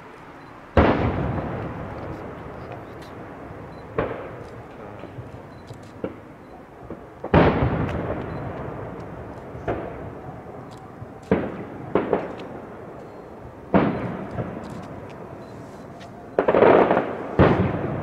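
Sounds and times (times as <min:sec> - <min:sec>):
firework shells bursting: 0:00.7 - 0:10.2
rolling echo of bangs: 0:00.8 - 0:02.7, 0:03.3 - 0:04.4, 0:06.9 - 0:10.3, 0:11.3 - 0:12.8, 0:13.7 - 0:14.6, 0:16.4 - 0:18.0.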